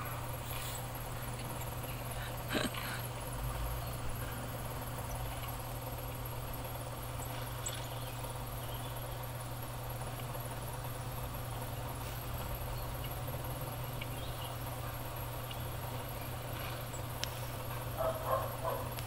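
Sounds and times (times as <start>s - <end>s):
steady low hum: 0.0s - 19.0s
faint high bird chirps: 7.1s - 9.3s, 13.8s - 14.7s.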